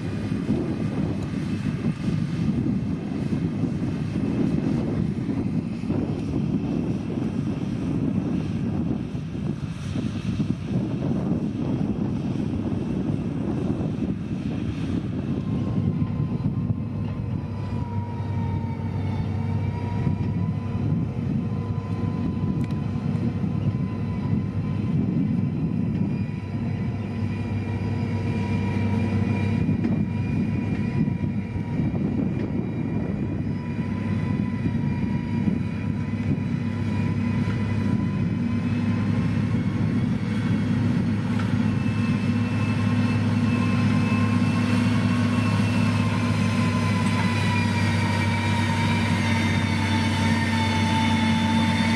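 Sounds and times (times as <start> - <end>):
diesel engine droning with whine: 0.0 - 51.9.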